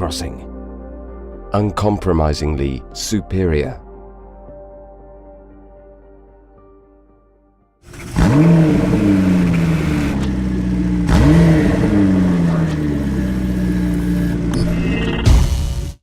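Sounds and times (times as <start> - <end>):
car engine revving: 7.9 - 14.8.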